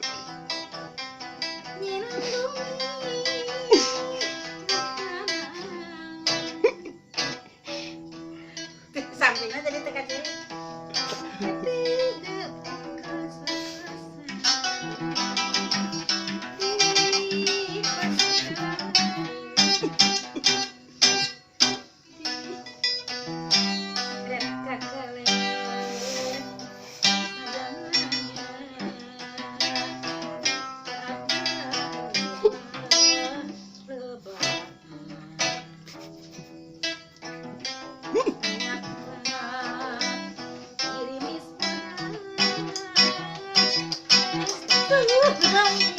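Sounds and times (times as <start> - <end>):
plucked zither notes: 8.2 - 33.7, 36.8 - 45.9.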